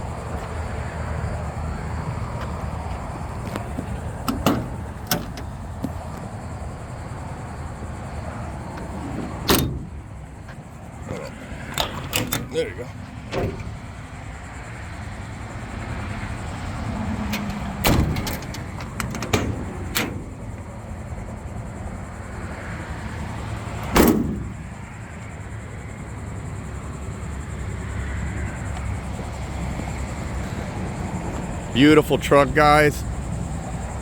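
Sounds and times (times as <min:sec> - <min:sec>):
low vehicle rumble: 0:00.0 - 0:34.0.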